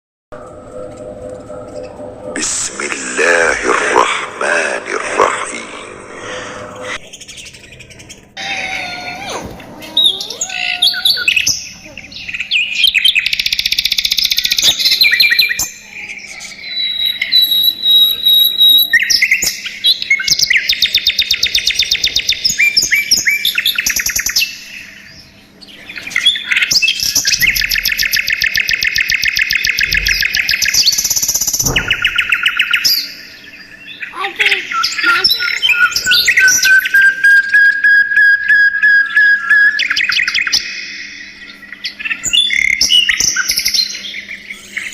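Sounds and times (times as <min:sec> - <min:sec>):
budgerigars chattering: 0:07.0 - 0:37.2.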